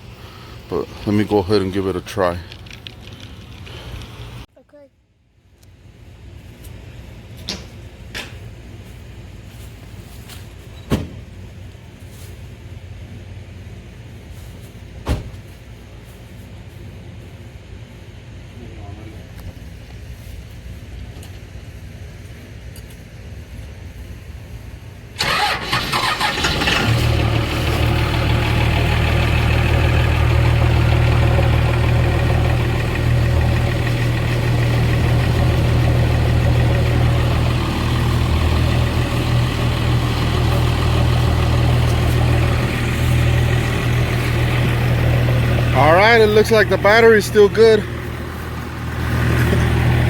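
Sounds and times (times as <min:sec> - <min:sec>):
diesel engine starting and idling: 0:00.0 - 0:04.4, 0:25.1 - 0:50.0.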